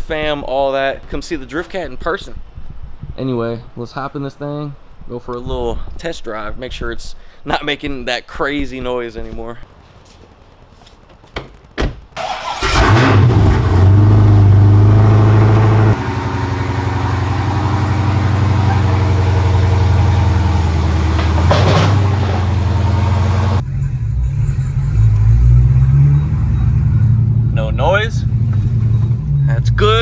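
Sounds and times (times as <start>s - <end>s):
car engine starting and idling: 12.2s - 30.0s.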